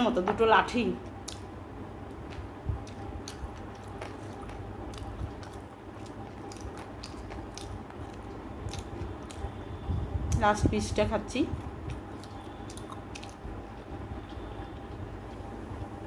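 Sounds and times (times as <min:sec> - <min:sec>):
person chewing food: 0:01.1 - 0:09.8, 0:11.6 - 0:15.6.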